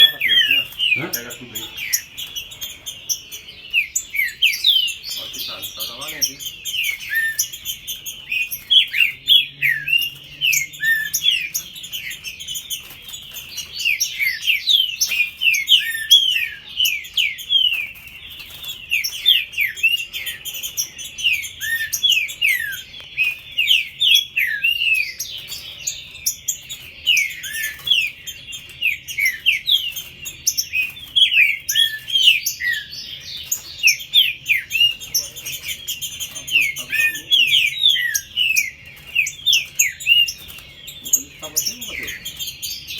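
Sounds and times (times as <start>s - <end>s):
birds singing whistled notes: 0.0s - 42.9s.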